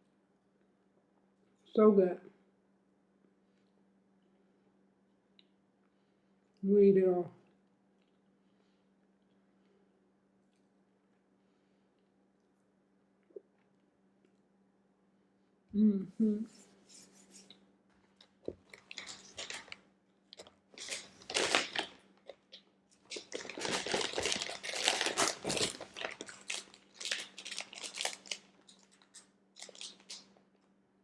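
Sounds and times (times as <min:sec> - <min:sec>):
chewing and biting snack: 0:18.1 - 0:30.4
plastic wrapper crinkling: 0:18.2 - 0:30.4.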